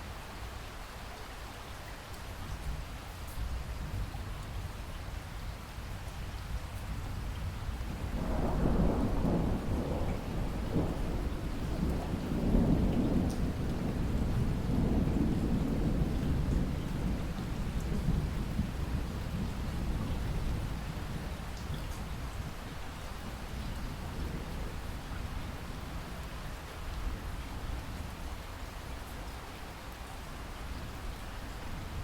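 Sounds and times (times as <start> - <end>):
steady rain: 0.0 - 32.0
rolling thunder: 7.9 - 22.5.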